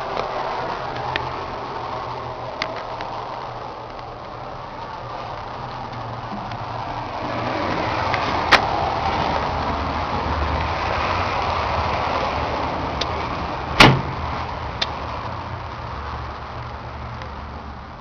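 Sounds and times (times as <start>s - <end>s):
diesel tractor engine running: 0.0s - 18.0s
loud clunk: 13.8s - 14.2s
sharp knock: 13.8s - 14.2s.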